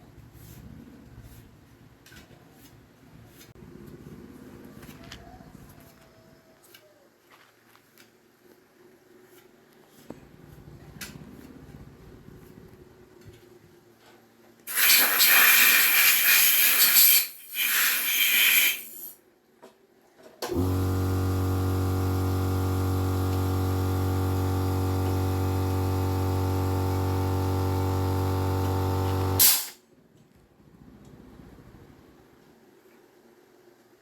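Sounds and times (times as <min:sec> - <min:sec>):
spraying hiss: 0:14.7 - 0:19.2, 0:29.4 - 0:29.8.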